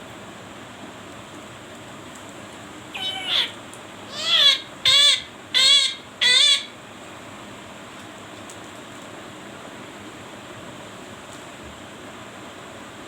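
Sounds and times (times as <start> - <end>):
parrot calling: 2.9 - 6.8.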